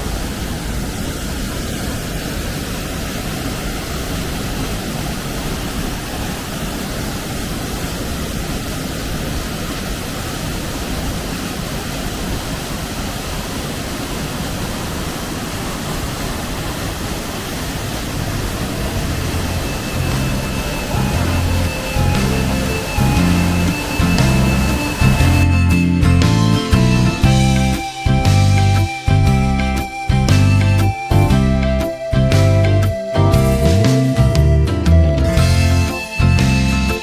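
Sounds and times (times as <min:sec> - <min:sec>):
waterfall rushing: 0:00.0 - 0:37.0
faint musical notes: 0:18.3 - 0:37.0.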